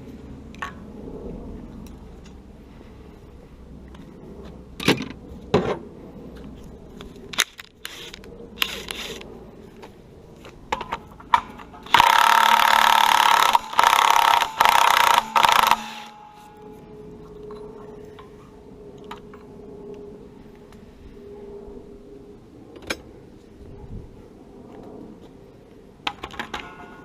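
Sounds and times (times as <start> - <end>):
power tool bursts: 11.9 - 16.3.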